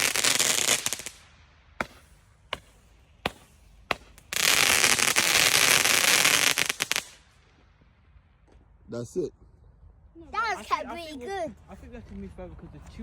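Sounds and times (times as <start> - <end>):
firework hissing rush: 0.0 - 1.2
firework sharp cracks: 0.0 - 7.5.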